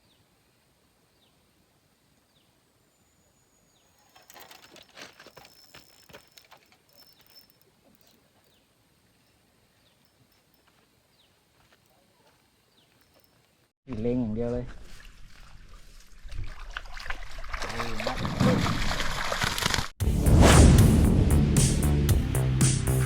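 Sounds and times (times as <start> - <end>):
clicks and rustles: 4.0 - 8.6
small birds chirping: 6.7 - 13.5.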